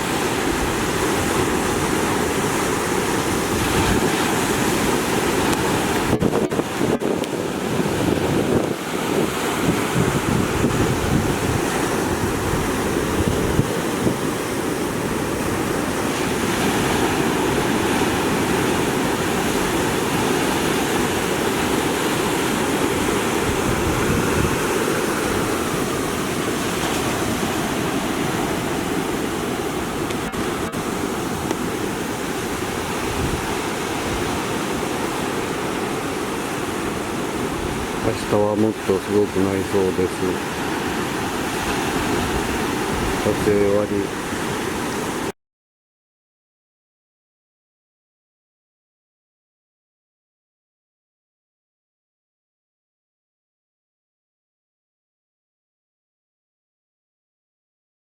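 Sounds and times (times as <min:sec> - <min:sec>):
wind buffeting microphone: 0:00.0 - 0:38.2, 0:40.4 - 0:45.3
surf waves roaring: 0:00.0 - 0:45.3.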